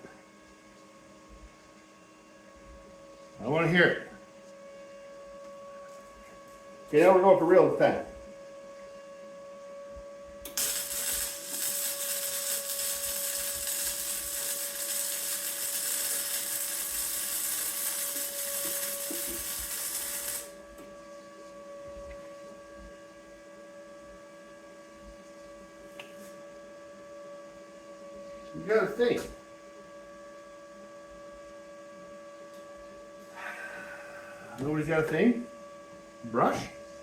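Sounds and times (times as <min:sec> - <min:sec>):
electrical hum: 0:00.0 - 0:37.0
welder crackling hiss: 0:10.4 - 0:20.6.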